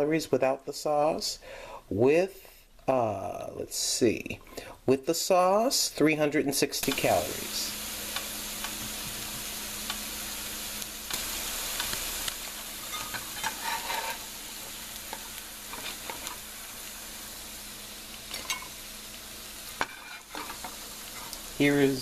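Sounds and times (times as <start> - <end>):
food sizzling in oil: 6.5 - 22.0.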